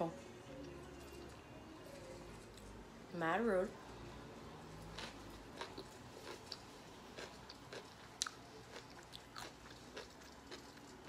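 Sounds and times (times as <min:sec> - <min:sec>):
crisp chewing of pickle: 0:04.8 - 0:11.0.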